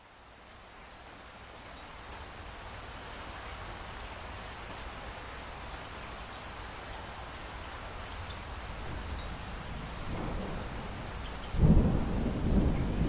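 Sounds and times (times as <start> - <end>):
steady rain: 0.0 - 13.0.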